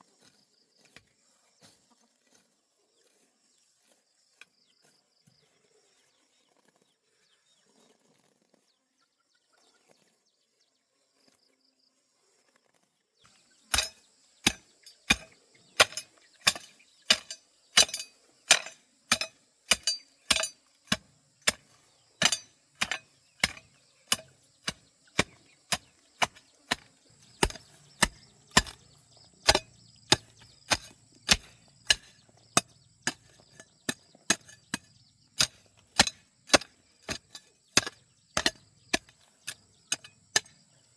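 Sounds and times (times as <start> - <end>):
blade chopping wood: 13.7 - 40.6.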